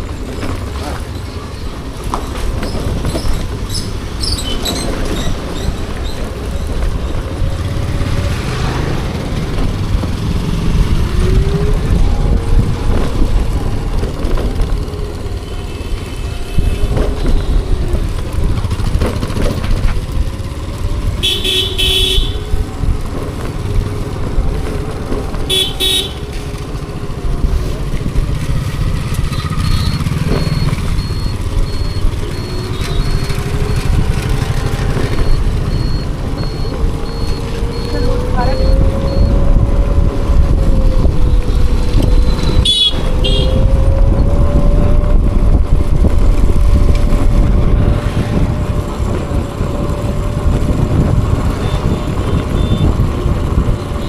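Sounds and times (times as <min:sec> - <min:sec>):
passing vehicle engines: 0:00.0 - 0:54.0
road rumble: 0:00.0 - 0:54.0
wind buffeting: 0:01.3 - 0:21.2, 0:22.2 - 0:54.0
vehicle horn honking: 0:21.2 - 0:22.6, 0:25.5 - 0:26.3, 0:42.6 - 0:43.6.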